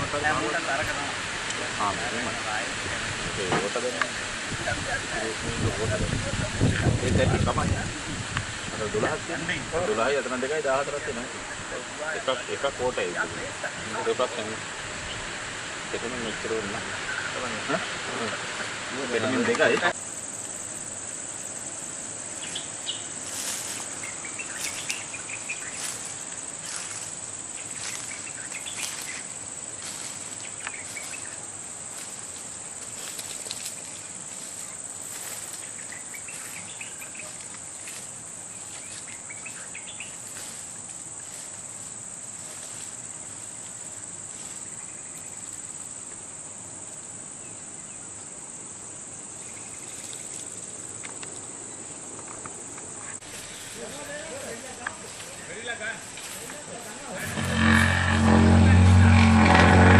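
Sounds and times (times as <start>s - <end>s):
insects droning: 0.0s - 59.9s
faint chirps: 19.9s - 41.4s.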